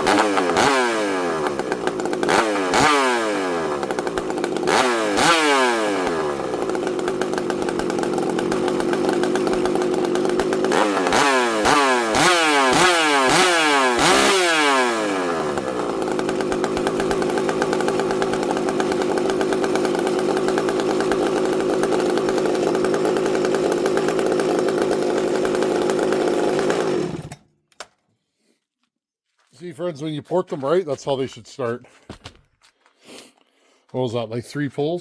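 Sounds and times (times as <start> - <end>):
chainsaw idling and revving: 0.0 - 27.5.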